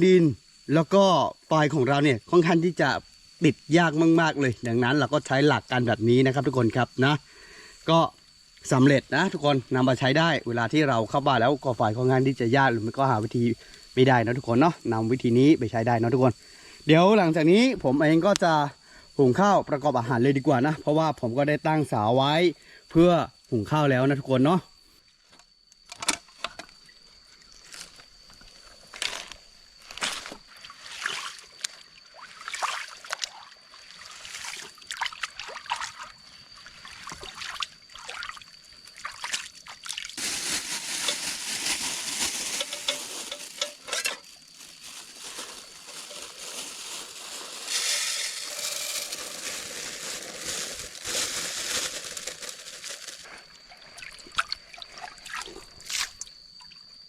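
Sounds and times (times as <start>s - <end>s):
high insect tone: 0.0s - 57.0s
water sloshing in a pot: 36.8s - 53.2s.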